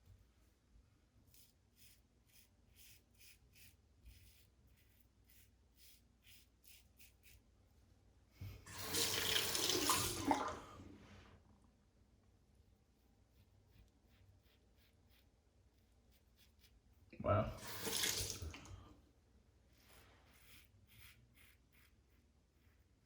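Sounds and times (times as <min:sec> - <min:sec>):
tap running water: 0:08.4 - 0:10.9, 0:17.5 - 0:18.9.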